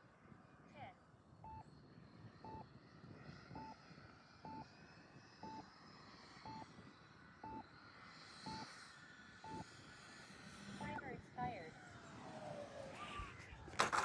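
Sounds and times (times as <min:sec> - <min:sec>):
short high timer beeps: 0:05.4 - 0:05.6, 0:06.4 - 0:06.6, 0:07.4 - 0:07.6, 0:08.5 - 0:08.7.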